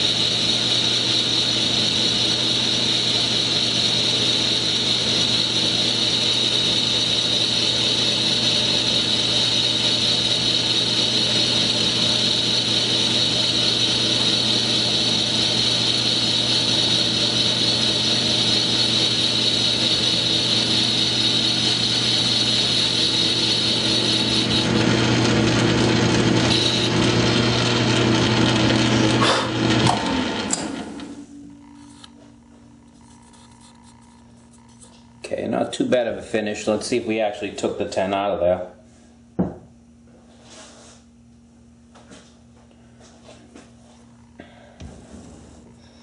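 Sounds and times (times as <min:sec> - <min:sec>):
lathe motor hum: 0:00.0 - 0:32.2.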